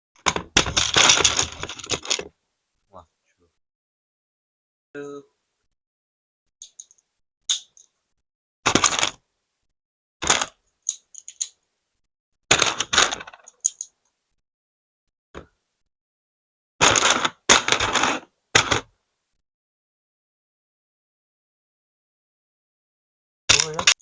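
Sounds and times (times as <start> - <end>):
plastic toy bricks clattering: 0.2 - 2.3, 8.7 - 9.2, 10.2 - 11.6, 12.5 - 14.0, 16.8 - 18.9, 23.5 - 24.0.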